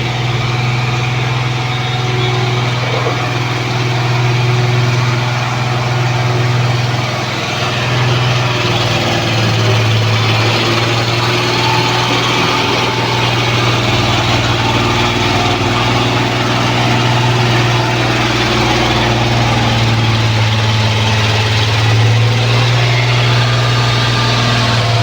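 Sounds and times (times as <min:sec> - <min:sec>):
road roller diesel engine humming: 0:00.0 - 0:25.0.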